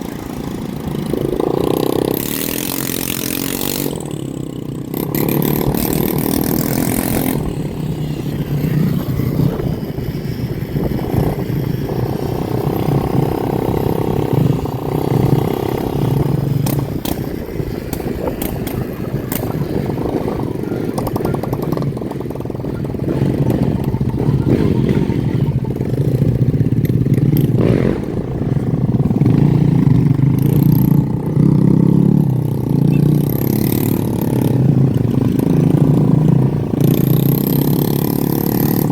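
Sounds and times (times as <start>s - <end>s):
motorcycle engines revving: 0.0s - 38.9s
clatter: 16.5s - 20.2s, 20.9s - 31.3s.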